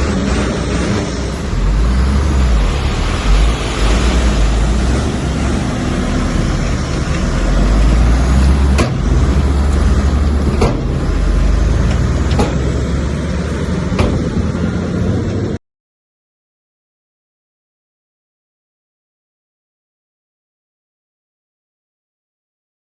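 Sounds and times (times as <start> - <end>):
diesel engine deep rumble: 0.0 - 15.6
sharp knocks: 8.7 - 9.3, 10.5 - 11.0, 12.2 - 12.8, 13.9 - 14.4.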